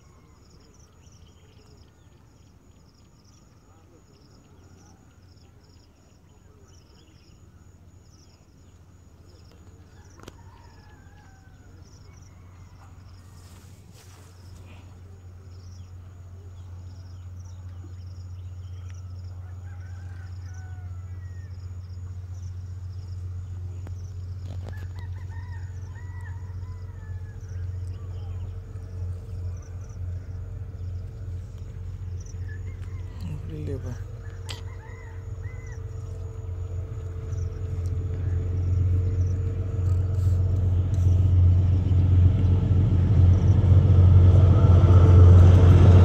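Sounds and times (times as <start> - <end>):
rooster crowing: 9.9 - 13.1, 19.4 - 21.8, 24.6 - 28.2, 32.1 - 41.7
train rumble: 26.4 - 46.0.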